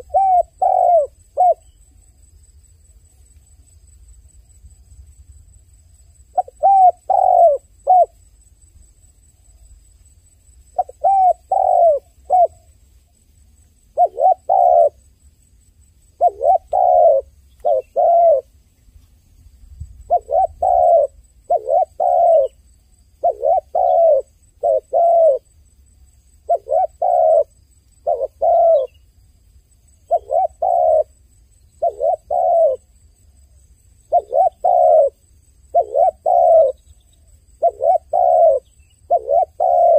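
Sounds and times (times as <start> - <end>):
dove cooing: 0.0 - 1.7, 6.3 - 8.2, 10.7 - 12.7, 13.9 - 15.0, 16.2 - 18.5, 20.0 - 22.6, 23.2 - 25.5, 26.4 - 29.0, 30.1 - 31.1, 31.8 - 32.9, 34.1 - 39.9.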